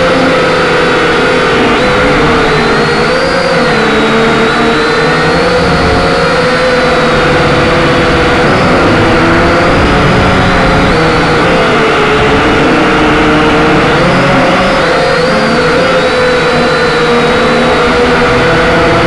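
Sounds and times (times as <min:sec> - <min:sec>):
quadcopter motors whining: 0:00.0 - 0:19.0
rushing noise: 0:00.0 - 0:19.0.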